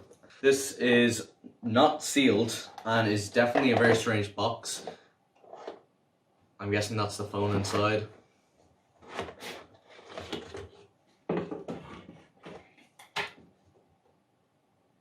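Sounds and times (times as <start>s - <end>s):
box packaging handled by hand: 9.0s - 13.3s.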